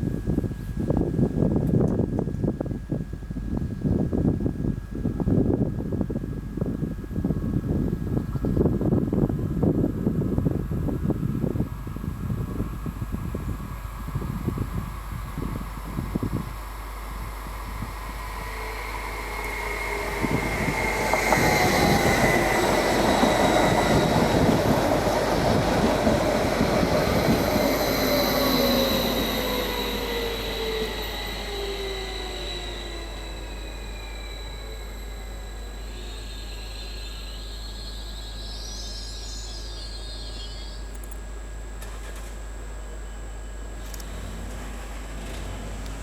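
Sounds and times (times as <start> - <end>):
electric train passing: 10.4 - 41.0, 43.6 - 46.0
whining tones dropping in pitch: 14.0 - 41.0.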